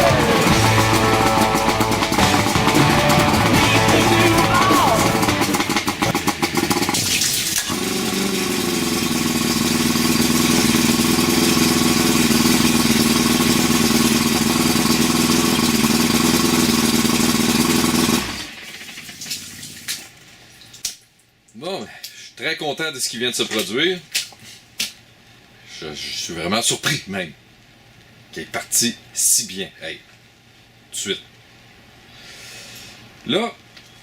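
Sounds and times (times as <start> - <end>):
outboard motor running: 0.0 - 19.4.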